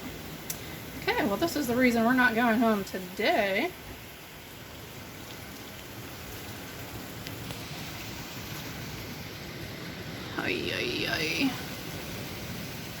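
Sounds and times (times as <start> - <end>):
heavy rain beating on roof: 0.0 - 13.0
strong wind: 4.8 - 13.0.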